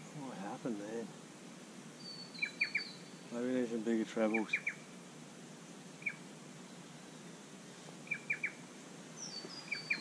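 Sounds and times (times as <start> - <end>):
faint steady hiss: 0.0 - 10.0
bird chirping: 2.0 - 3.5, 4.2 - 4.9, 6.0 - 10.0.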